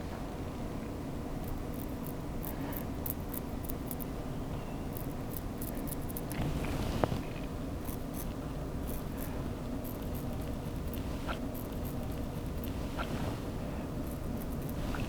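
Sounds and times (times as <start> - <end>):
low room hum: 0.0 - 15.0
razor scraping stubble: 7.9 - 15.0.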